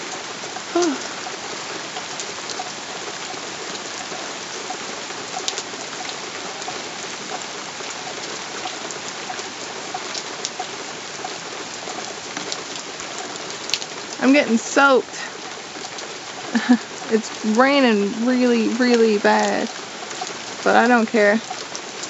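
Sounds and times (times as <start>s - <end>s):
heavy rain hiss: 0.0s - 22.0s
single raindrop ticks: 2.0s - 14.2s, 18.7s - 20.6s.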